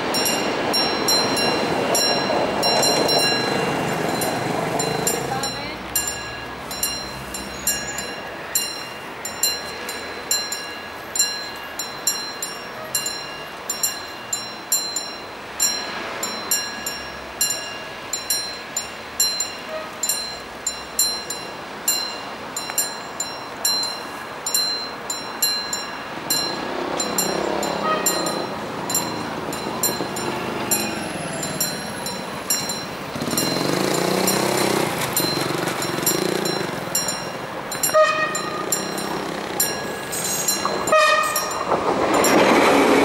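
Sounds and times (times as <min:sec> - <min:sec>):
deep train rumble: 0:00.0 - 0:43.0
train wheels clickety-clack: 0:00.2 - 0:05.4, 0:26.6 - 0:43.0.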